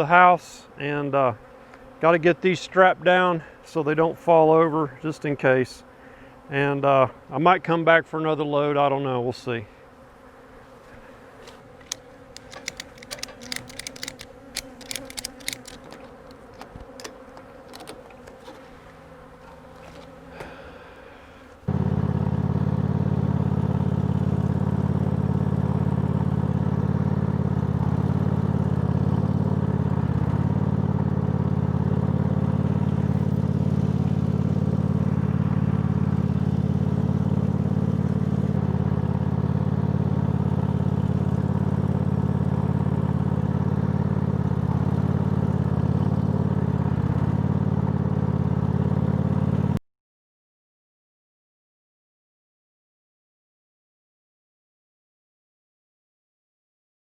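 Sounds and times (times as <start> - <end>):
bees buzzing: 9.1 - 21.7
clicks and clatters of straps: 11.4 - 20.2
vehicle engine running: 21.7 - 49.8.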